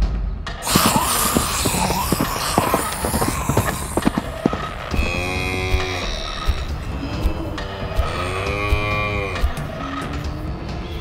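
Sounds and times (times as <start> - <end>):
noisy rush: 0.6 - 7.0.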